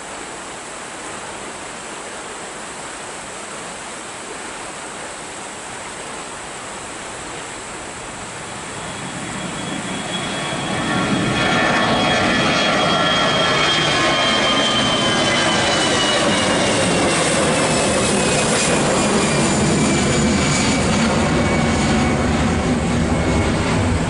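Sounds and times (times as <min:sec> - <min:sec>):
airliner engines: 0:07.0 - 0:24.0
high engine whine: 0:07.8 - 0:24.0.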